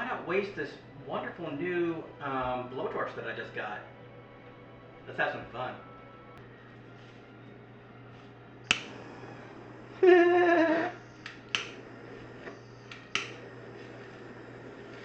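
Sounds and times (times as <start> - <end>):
blowtorch igniter clicks: 8.6 - 9.4, 11.2 - 15.0.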